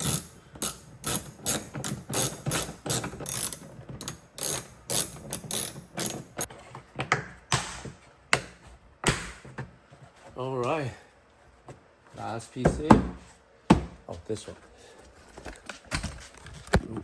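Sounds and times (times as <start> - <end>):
hand ratchet clicking: 0.0 - 6.5.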